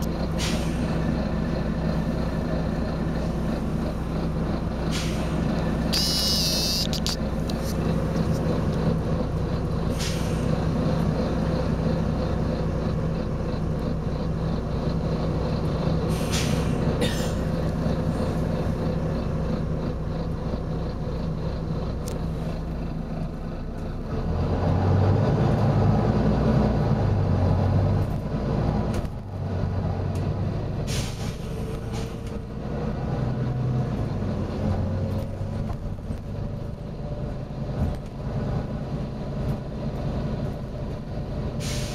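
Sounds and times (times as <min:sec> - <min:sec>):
bus diesel engine running: 0:00.0 - 0:41.9
compressed air hisses: 0:41.6 - 0:41.9.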